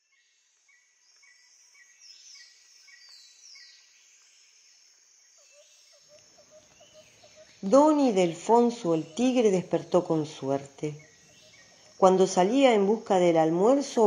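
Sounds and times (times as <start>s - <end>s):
high insect hiss: 0.0s - 14.0s.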